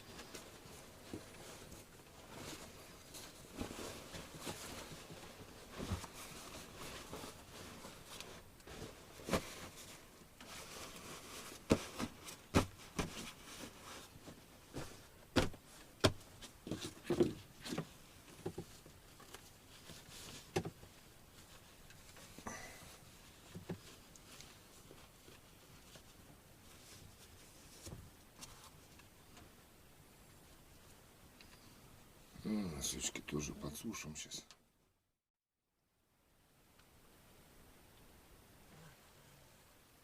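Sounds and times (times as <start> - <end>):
rustling: 0.0 - 32.0.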